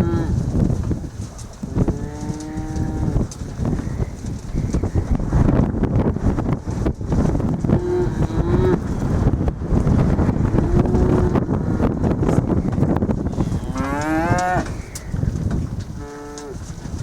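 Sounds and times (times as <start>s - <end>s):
wind noise on microphone: 0.0s - 17.0s
cattle mooing: 1.8s - 3.2s, 7.7s - 8.8s, 10.6s - 11.4s, 13.3s - 14.9s, 16.0s - 16.6s.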